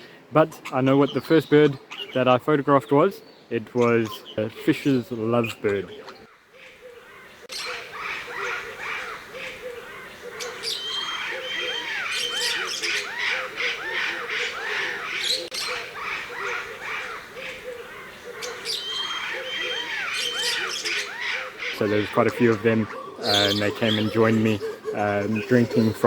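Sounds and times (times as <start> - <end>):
birds squawking and chirping: 0.0 - 26.0.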